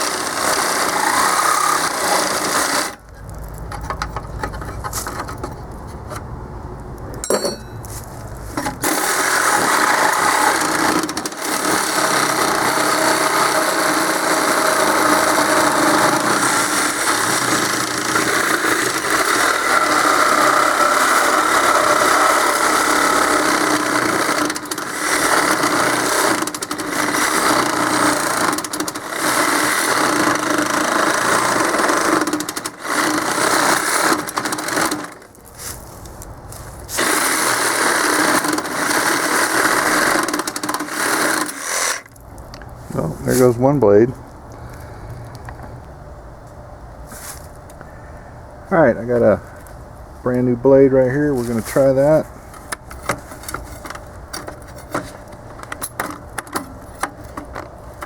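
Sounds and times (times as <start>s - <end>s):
reciprocating saw cutting steel: 0.0s - 3.1s, 8.6s - 35.2s, 37.0s - 42.1s.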